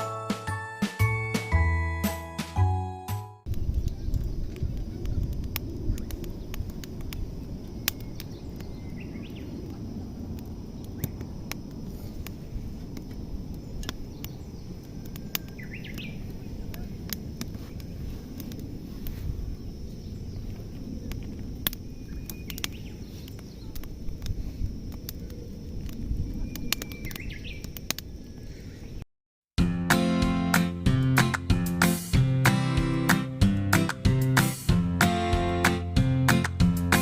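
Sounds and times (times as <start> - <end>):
low wind rumble: 3.5 - 29.0
birds chirping: 7.2 - 11.2, 13.6 - 17.0, 21.8 - 23.9, 26.3 - 29.0.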